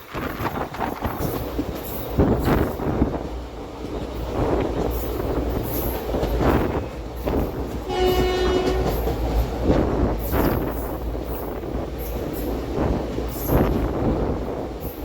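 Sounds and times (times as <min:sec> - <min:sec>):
train wheels rumbling on track: 0:00.0 - 0:15.0
train horn: 0:07.8 - 0:09.2.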